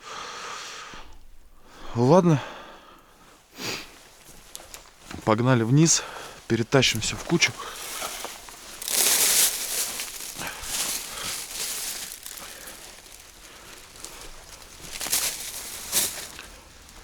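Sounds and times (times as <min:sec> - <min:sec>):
rustling and scraping of junk: 0:06.8 - 0:17.0.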